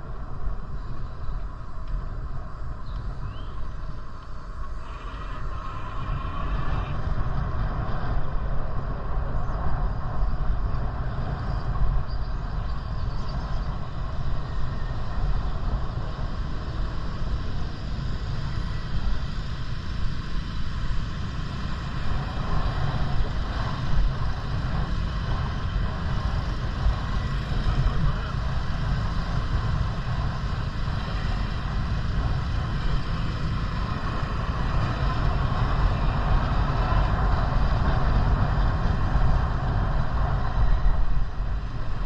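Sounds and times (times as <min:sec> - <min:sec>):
wind buffeting microphone: 0:00.0 - 0:42.0.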